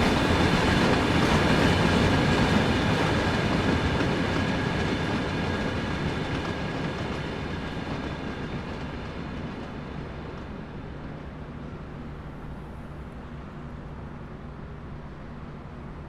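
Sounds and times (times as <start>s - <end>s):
train wheels clicking on rails: 0.0s - 14.3s.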